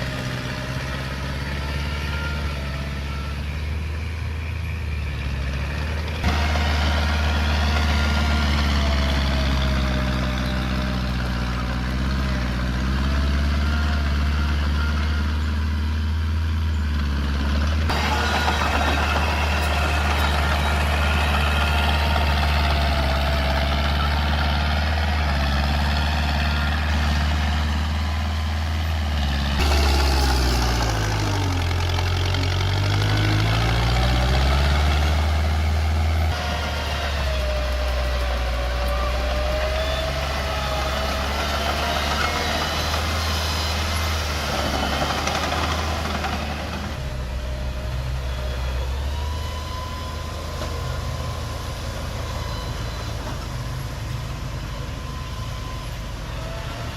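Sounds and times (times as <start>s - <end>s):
diesel engine running under load: 0.0s - 56.9s
high wavering squeal: 17.9s - 28.3s, 29.6s - 32.6s, 33.2s - 46.2s.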